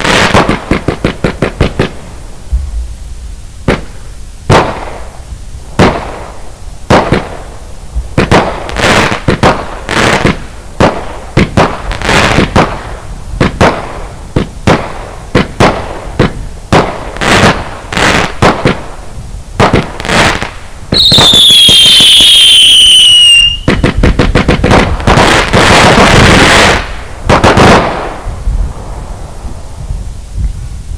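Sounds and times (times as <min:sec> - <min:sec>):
rapid firework pops: 0:00.0 - 0:02.7, 0:03.6 - 0:05.1, 0:05.8 - 0:07.4, 0:08.0 - 0:19.0, 0:19.6 - 0:21.5, 0:22.1 - 0:28.3
firework shots and bursts: 0:00.0 - 0:03.0, 0:03.6 - 0:30.6
firework whistle gliding down: 0:20.4 - 0:24.0.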